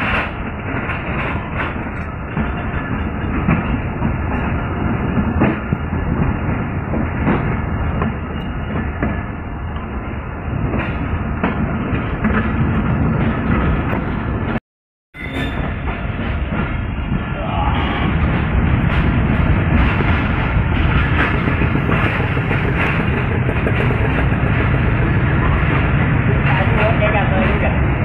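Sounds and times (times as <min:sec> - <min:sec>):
wheels clicking over rail joints: 0:00.0 - 0:09.2, 0:15.8 - 0:27.8
train coach rumbling: 0:00.0 - 0:14.6, 0:15.2 - 0:28.0.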